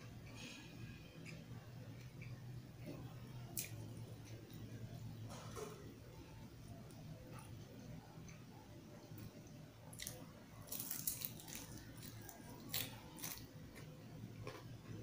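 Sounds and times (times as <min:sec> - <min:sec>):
crunchy chewing: 0:09.9 - 0:15.0.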